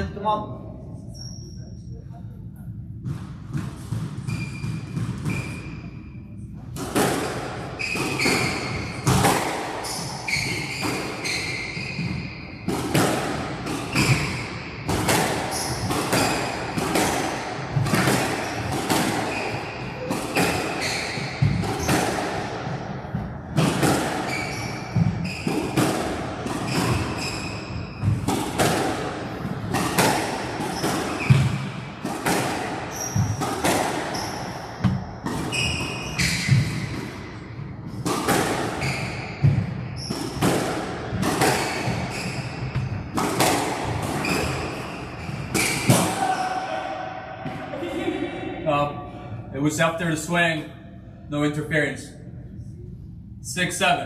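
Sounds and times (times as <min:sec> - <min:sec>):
squash ball hits: 0:03.0 - 0:05.6, 0:06.7 - 0:46.6, 0:47.4 - 0:48.0
shoes squeaking on court floor: 0:04.2 - 0:06.6, 0:07.8 - 0:12.7, 0:15.5 - 0:17.2, 0:17.8 - 0:22.1, 0:24.1 - 0:25.8, 0:26.6 - 0:28.3, 0:29.7 - 0:37.4, 0:38.7 - 0:40.5, 0:41.3 - 0:43.6, 0:44.2 - 0:46.5.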